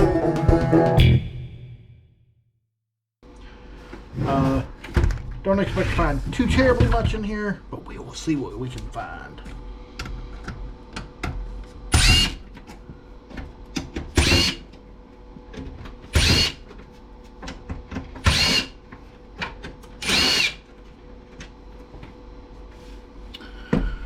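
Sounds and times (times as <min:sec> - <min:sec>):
power drill motor whine: 0:11.9 - 0:12.4, 0:14.2 - 0:14.7, 0:16.1 - 0:16.7, 0:18.2 - 0:18.8, 0:20.0 - 0:20.7.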